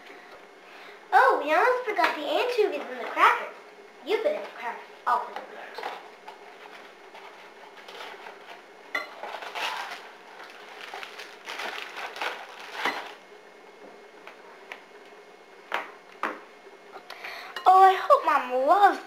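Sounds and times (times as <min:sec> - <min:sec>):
dishes and utensils clattering: 0:08.9 - 0:10.0.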